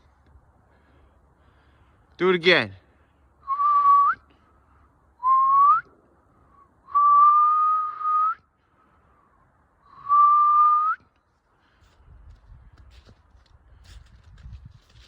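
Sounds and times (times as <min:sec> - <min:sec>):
person whistling notes: 0:06.9 - 0:08.4.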